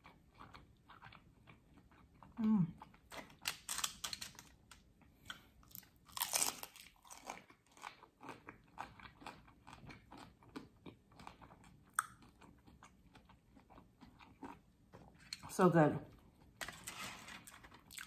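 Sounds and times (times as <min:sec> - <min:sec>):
crunchy chewing: 0:05.3 - 0:15.5.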